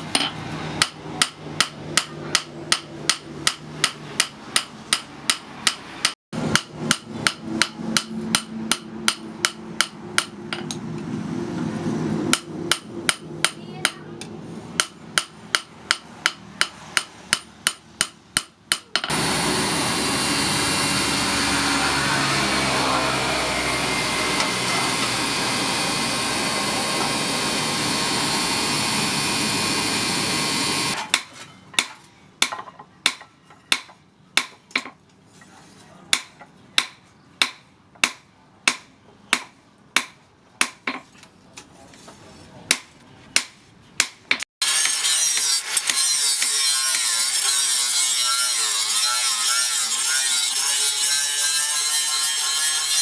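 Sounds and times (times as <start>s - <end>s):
rasping grinding noise: 19.1s - 31.0s, 44.6s - 53.0s.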